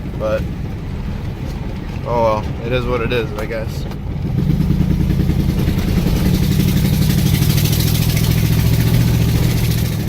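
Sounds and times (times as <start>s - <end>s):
truck engine running loud: 4.0s - 10.0s.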